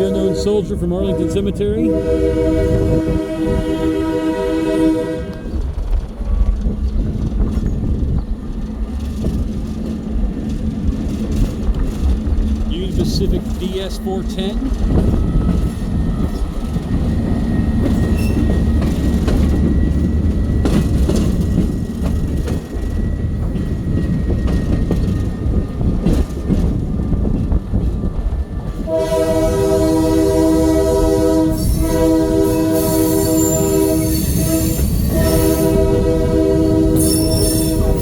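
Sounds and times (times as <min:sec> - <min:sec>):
locomotive air horn: 0:00.0 - 0:05.6, 0:28.9 - 0:38.0
train wheels rumbling on rails: 0:00.0 - 0:38.0
rail clicks: 0:05.2 - 0:29.5.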